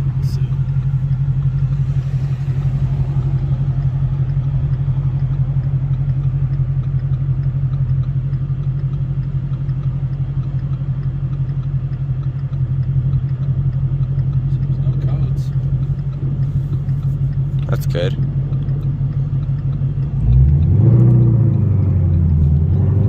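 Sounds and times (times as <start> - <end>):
car engine running steadily: 0.0 - 23.0.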